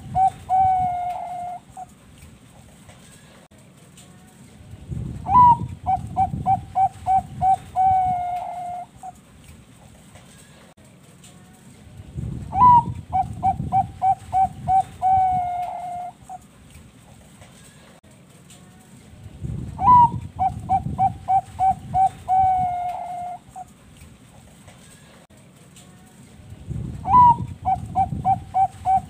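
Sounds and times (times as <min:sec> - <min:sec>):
dove cooing song: 0:00.0 - 0:02.0, 0:05.2 - 0:09.2, 0:12.5 - 0:16.5, 0:19.8 - 0:23.7, 0:27.0 - 0:29.0.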